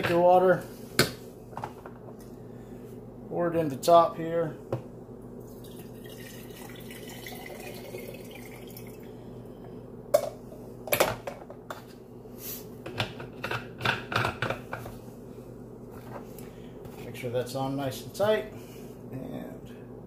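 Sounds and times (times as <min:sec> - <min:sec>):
water trickling into reservoir: 0:05.5 - 0:09.1.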